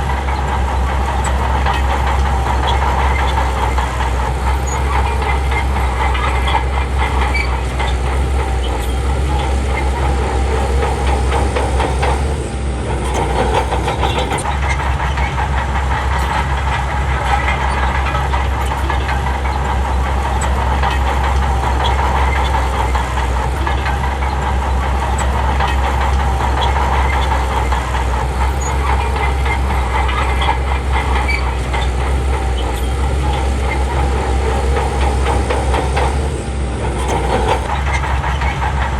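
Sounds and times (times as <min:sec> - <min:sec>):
bulldozer diesel engine: 0:00.0 - 0:38.9
steel tracks clanking: 0:00.0 - 0:38.9.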